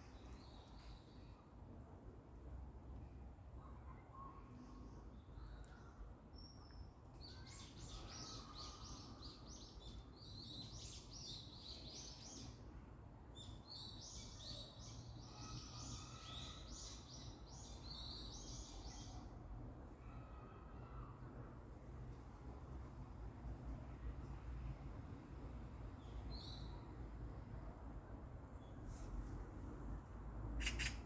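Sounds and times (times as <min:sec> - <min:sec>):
songbird singing: 0:30.6 - 0:31.0.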